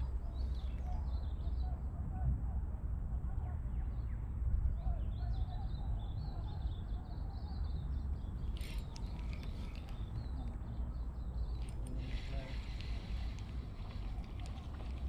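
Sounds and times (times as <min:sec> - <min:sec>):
wind rumble on microphone: 0:00.0 - 0:15.0
small birds chirping: 0:04.9 - 0:15.0.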